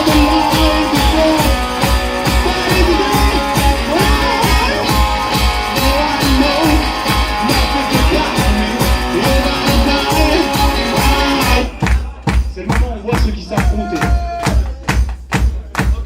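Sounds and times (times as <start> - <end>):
guitar lines: 0.0 - 11.8
steady drum beat: 0.0 - 16.0.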